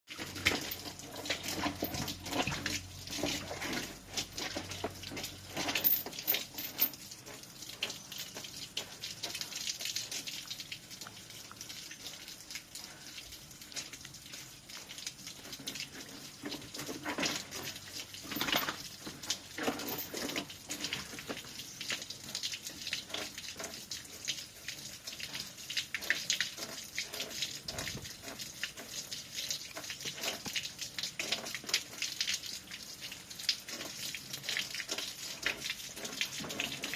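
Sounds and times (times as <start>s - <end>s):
water splashing and sloshing: 0.1s - 36.9s.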